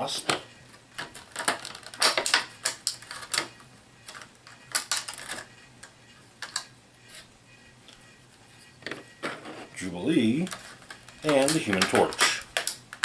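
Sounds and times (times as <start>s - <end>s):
plastic game figures clicking: 10.4s - 13.0s.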